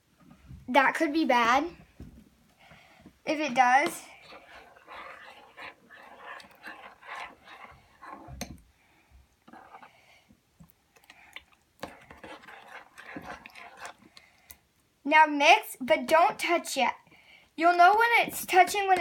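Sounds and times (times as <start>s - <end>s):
utensil scraping a bowl: 3.4s - 8.6s, 9.5s - 10.0s, 11.8s - 14.2s.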